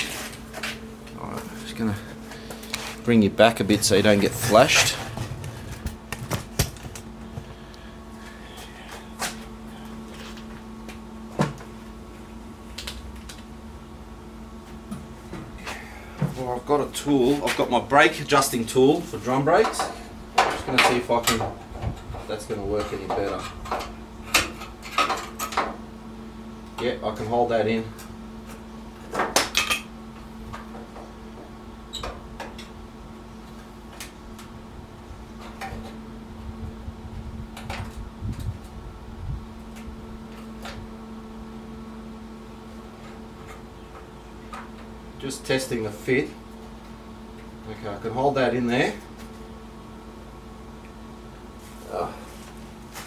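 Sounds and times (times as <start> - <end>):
low hum: 0.0 - 11.2
steady low hum: 0.0 - 53.0.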